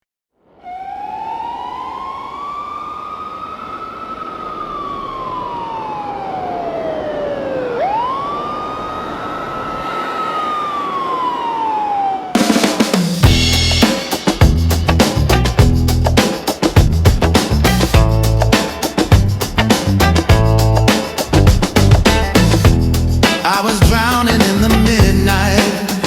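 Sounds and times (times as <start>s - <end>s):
emergency siren wailing: 0.4s - 13.1s.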